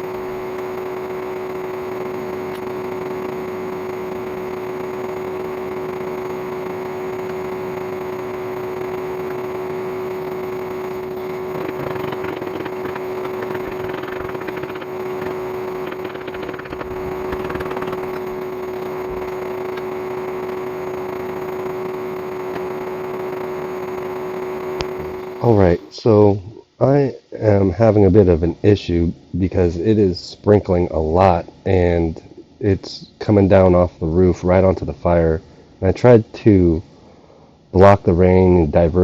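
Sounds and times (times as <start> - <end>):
vacuum cleaner motor humming: 0.0 - 25.8.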